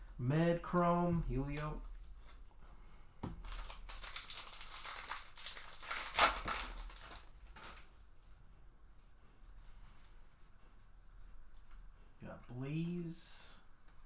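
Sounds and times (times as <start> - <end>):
trading cards rustling: 3.4 - 7.8.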